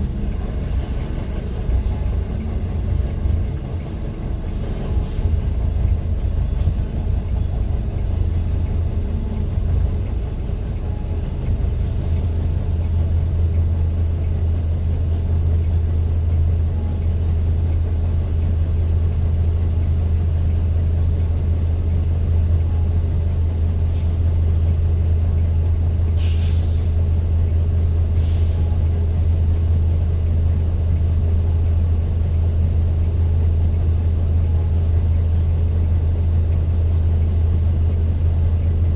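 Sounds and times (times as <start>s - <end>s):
vehicle engine and road drone: 0.0s - 38.9s
short air hisses: 26.2s - 26.9s.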